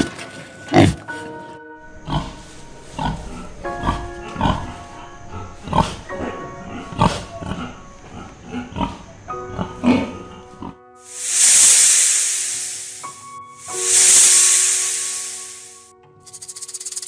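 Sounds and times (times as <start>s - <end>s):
background music with held notes: 0.0s - 11.0s.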